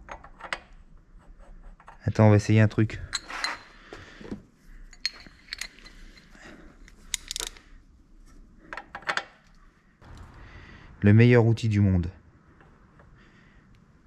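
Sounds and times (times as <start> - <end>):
metal tools clinking: 3.0 - 3.8, 4.9 - 7.7.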